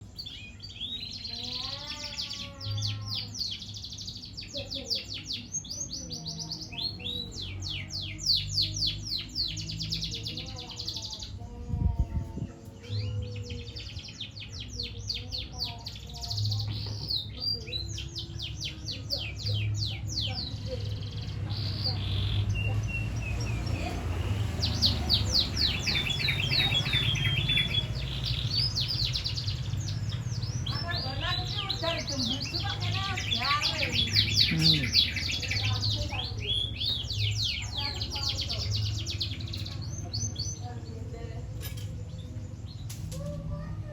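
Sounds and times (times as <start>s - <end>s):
canary trilling song: 0.0s - 43.9s.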